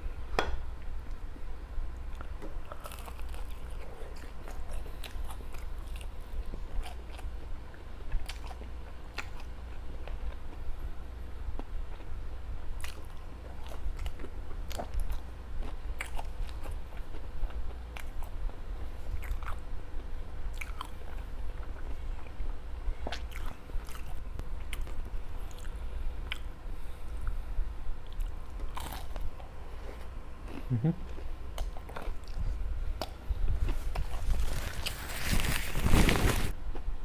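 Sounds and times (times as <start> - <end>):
crunchy chewing: 2.1 - 7.4, 12.8 - 19.6, 20.5 - 26.5, 28.0 - 36.6.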